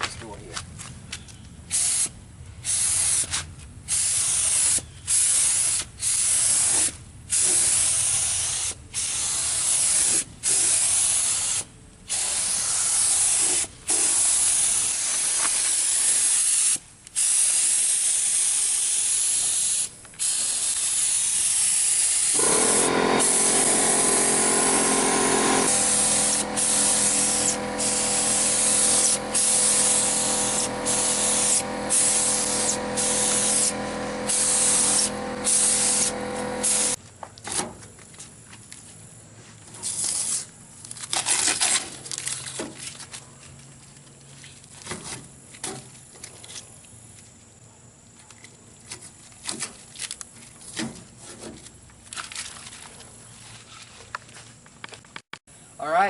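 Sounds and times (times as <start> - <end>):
spray gun hissing: 1.7 - 3.3, 3.9 - 37.0
steady mechanical hum: 19.0 - 41.2.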